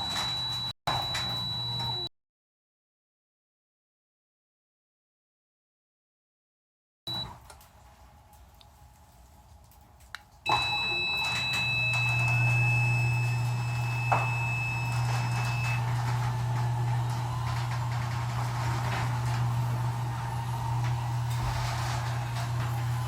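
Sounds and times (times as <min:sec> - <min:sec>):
high steady beep: 0:10.5 - 0:15.8
garage door opener motor humming: 0:10.5 - 0:23.0.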